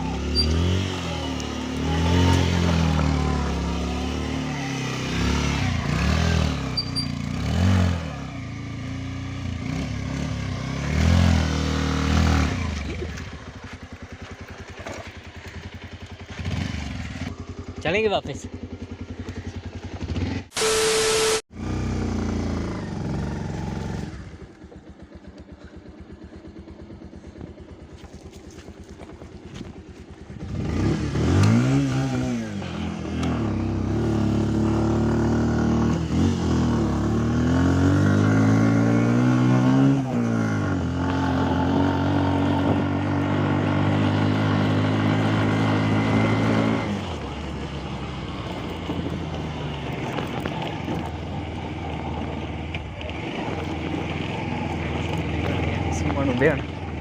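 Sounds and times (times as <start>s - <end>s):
vehicle engine idling and revving: 0.0s - 57.0s.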